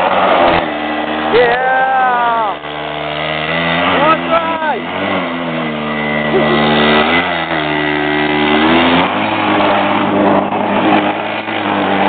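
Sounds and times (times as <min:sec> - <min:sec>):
small motorbike engine revving: 0:00.0 - 0:12.0.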